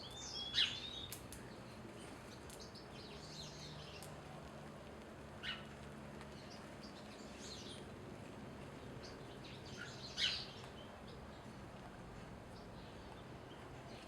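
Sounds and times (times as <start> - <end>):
small birds chirping: 0.0 - 4.2, 8.8 - 11.7.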